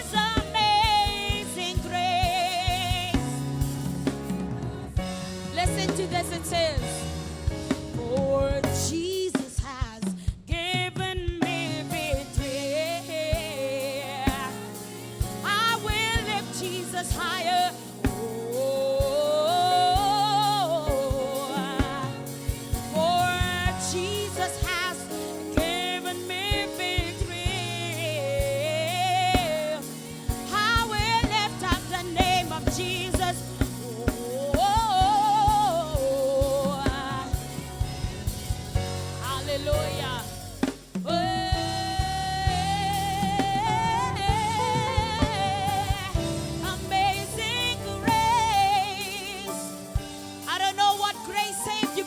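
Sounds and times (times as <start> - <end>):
drum kit and band: 0.0 - 52.0.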